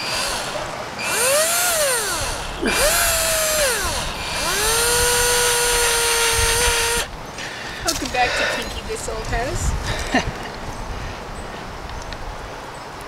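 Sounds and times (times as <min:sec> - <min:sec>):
power drill motor whine: 0:00.0 - 0:07.1.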